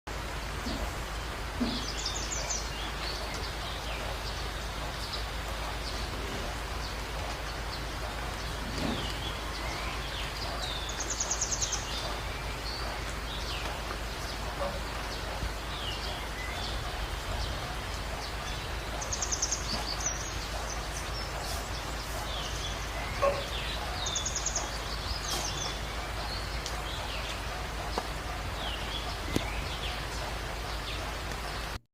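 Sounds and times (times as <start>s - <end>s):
steady rain: 0.1s - 31.8s
budgerigars chirping: 8.1s - 30.2s.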